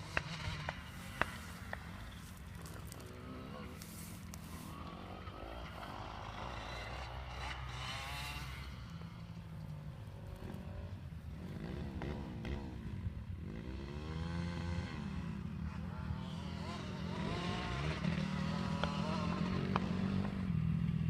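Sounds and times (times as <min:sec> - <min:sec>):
motocross bike engines revving: 0:00.0 - 0:21.0.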